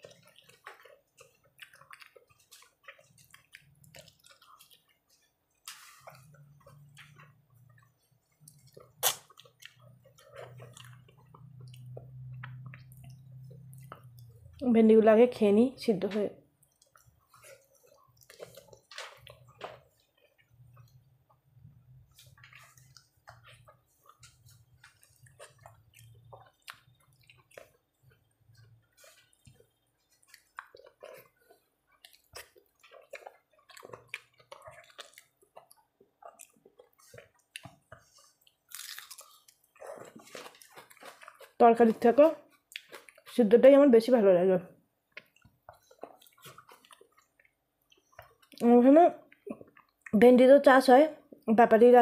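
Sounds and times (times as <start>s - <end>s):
wet chewing: 0.0s - 14.6s, 16.5s - 43.6s, 45.0s - 50.2s
mouth clicks and smacks: 8.4s - 14.3s.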